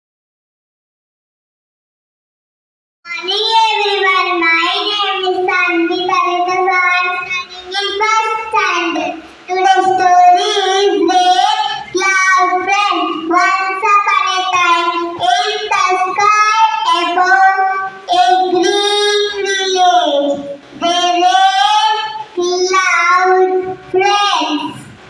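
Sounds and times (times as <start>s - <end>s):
children singing: 3.1s - 25.0s.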